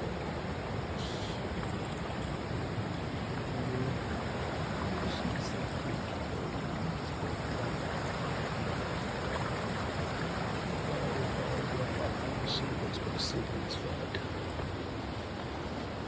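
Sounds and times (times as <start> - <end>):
river water flowing: 0.0 - 16.0.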